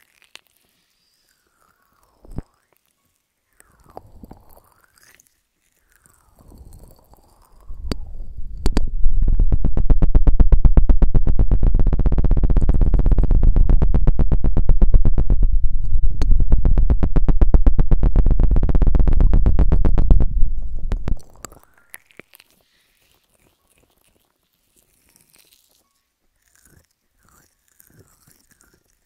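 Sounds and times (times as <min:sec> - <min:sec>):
fast buzzy pulsing on microphone: 0:06.4 - 0:21.7.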